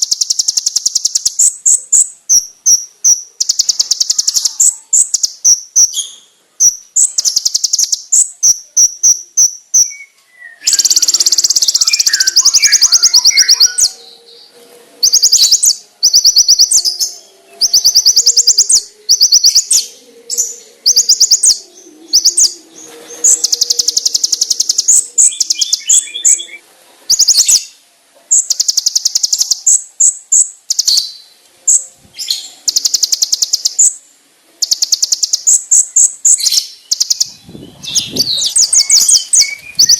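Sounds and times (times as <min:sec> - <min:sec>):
bird singing rapid trills: 0:00.0 - 0:14.4, 0:15.0 - 0:27.7, 0:28.3 - 0:34.0, 0:34.6 - 0:39.9.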